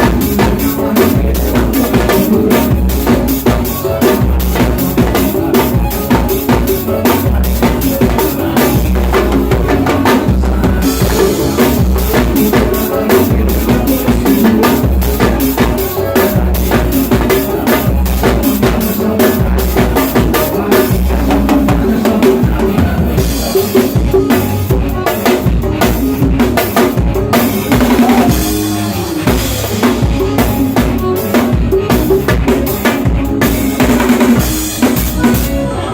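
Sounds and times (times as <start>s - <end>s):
recorded backing music: 0.0s - 35.9s.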